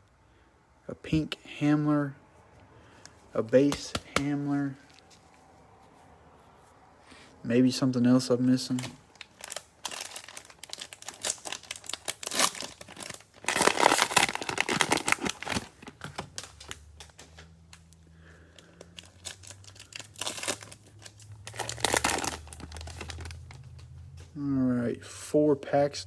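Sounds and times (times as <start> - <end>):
cellophane crinkling and tearing: 8.7 - 23.9.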